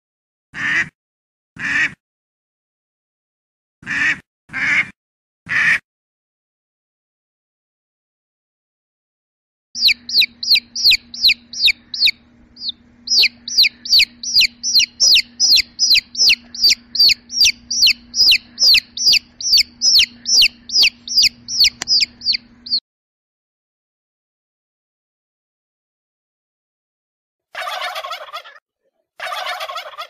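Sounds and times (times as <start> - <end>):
baby chick peeping: 9.8 - 22.8, 27.6 - 28.6, 29.2 - 30.0.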